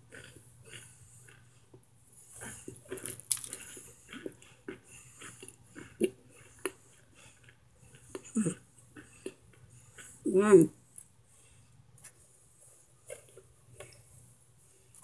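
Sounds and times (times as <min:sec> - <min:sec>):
crunching and chewing: 0:00.0 - 0:10.2, 0:13.0 - 0:14.1.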